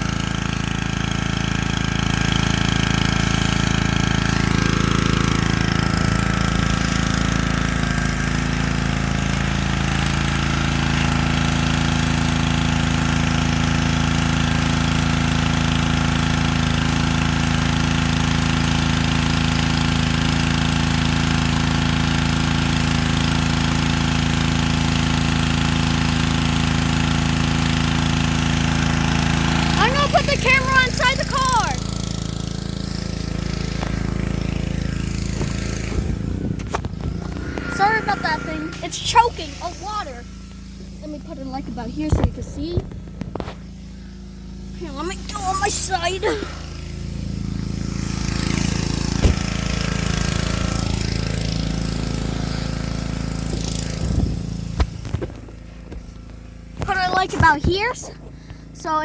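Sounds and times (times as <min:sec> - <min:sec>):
pressure washer engine droning: 0:00.0 - 0:59.0
water spraying: 0:00.0 - 0:59.0.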